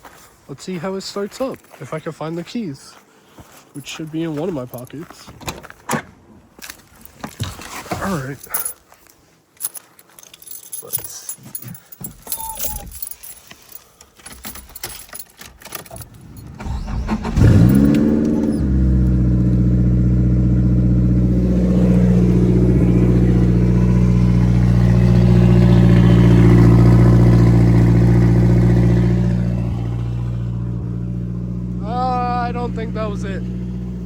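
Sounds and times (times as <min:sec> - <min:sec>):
keys jingling: 0:06.6 - 0:18.7
car engine cranking and idling: 0:10.0 - 0:34.0.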